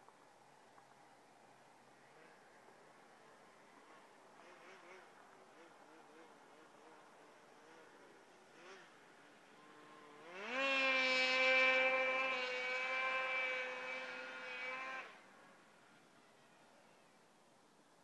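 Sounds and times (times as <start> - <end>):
snowmobile engine revving: 3.5 - 17.0.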